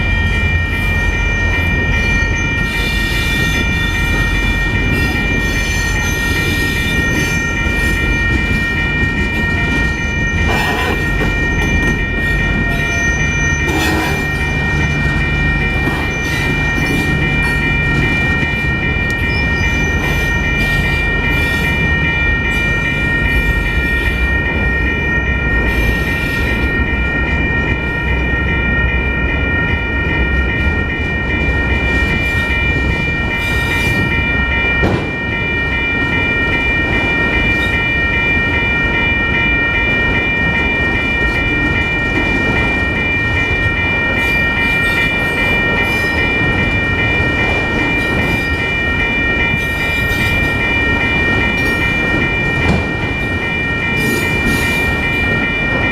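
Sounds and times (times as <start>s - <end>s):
train cars clanking: 0.0s - 28.8s, 29.4s - 55.9s
high wheel squeal: 0.8s - 24.2s.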